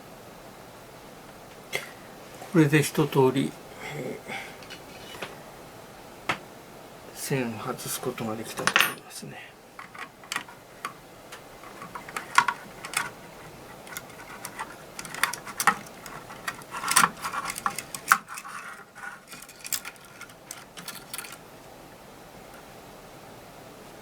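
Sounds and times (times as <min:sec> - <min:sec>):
faint steady hiss: 0:00.0 - 0:24.0
metallic clicks and rattles: 0:09.8 - 0:21.5.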